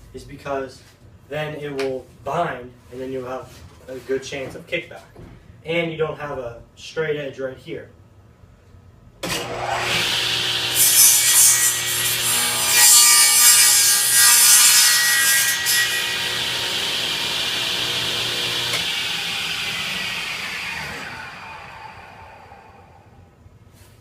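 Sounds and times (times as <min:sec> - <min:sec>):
saw blade cutting board: 0:09.2 - 0:22.9
table saw running: 0:09.3 - 0:23.1
saw blade winding down: 0:15.6 - 0:22.9.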